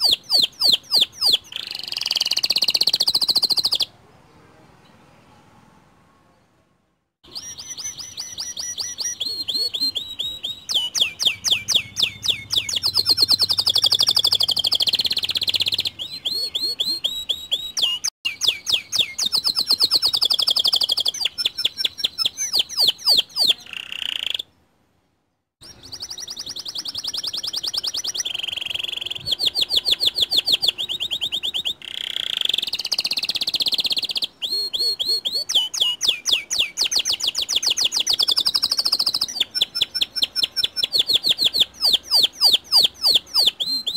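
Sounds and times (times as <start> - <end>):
canary singing trills: 0.0 - 4.0, 7.2 - 24.6, 25.6 - 43.9.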